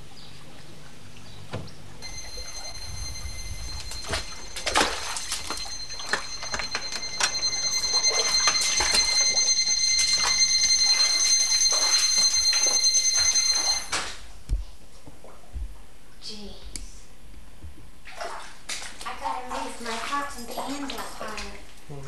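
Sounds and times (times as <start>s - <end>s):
high-pitched electronic tone: 2.0s - 14.1s.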